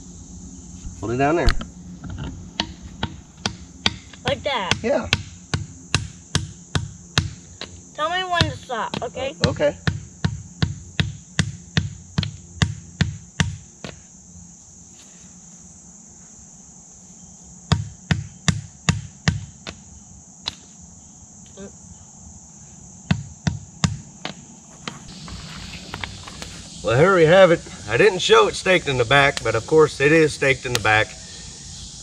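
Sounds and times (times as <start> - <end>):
insects droning: 0.0 - 32.0
wooden stake being hammered: 2.6 - 7.8, 8.4 - 14.0, 17.7 - 19.8, 20.4 - 20.7, 23.1 - 25.0.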